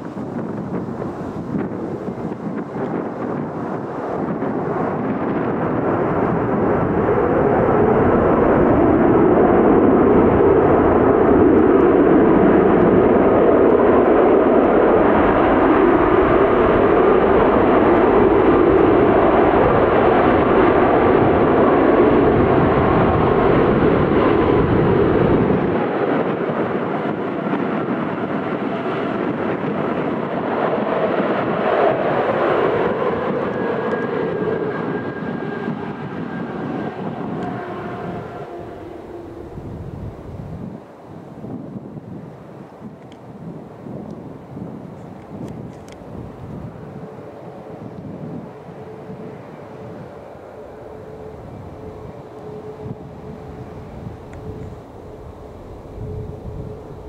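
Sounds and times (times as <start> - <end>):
aircraft engines roaring: 0.0 - 57.0
low rumble: 32.9 - 40.8.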